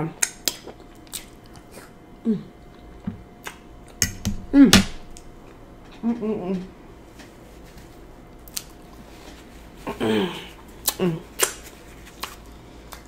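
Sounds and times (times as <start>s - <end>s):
chewing with mouth clicks: 0.2s - 2.0s, 8.4s - 9.1s, 10.8s - 13.0s.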